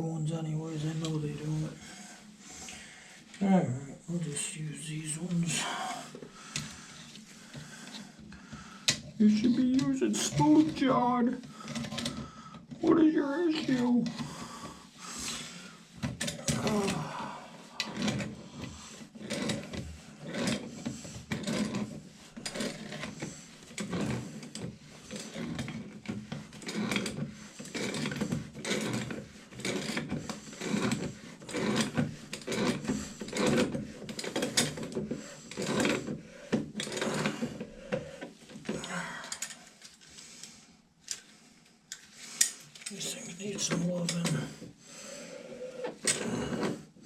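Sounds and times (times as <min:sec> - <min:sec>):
hand tool scraping and clicking: 0:17.8 - 0:41.3, 0:41.9 - 0:44.7, 0:45.8 - 0:46.8.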